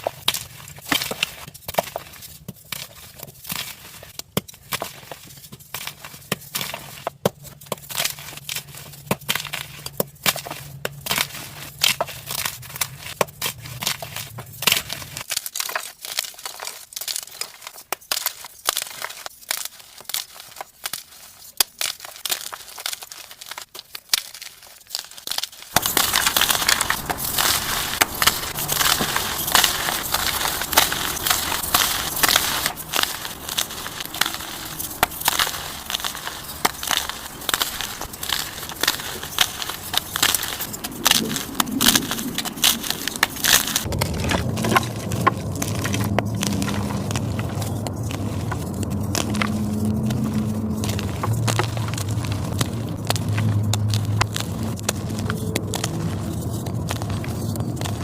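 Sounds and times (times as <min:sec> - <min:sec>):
chalk being crushed: 0:00.0 - 0:58.0.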